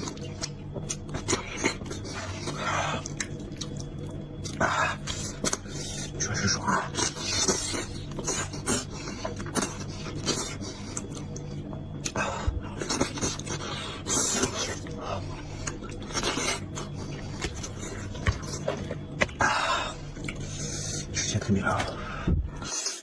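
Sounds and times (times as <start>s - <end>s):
wet chewing smacks: 0.0s - 5.8s
sucking and slurping: 0.0s - 23.0s.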